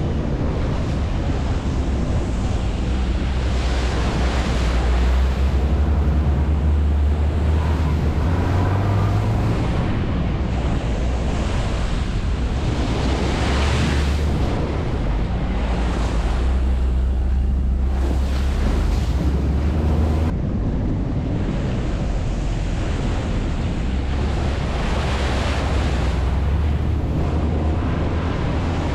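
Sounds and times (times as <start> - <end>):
atv engine rumbling: 0.0 - 20.3, 21.8 - 28.9
wind noise on microphone: 0.0 - 28.9.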